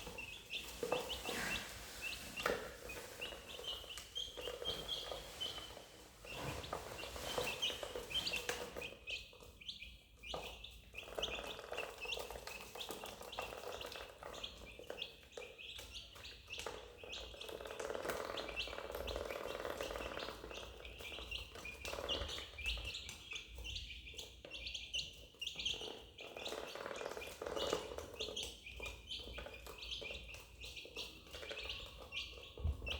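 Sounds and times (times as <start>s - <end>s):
ducklings peeping: 0.0s - 32.9s.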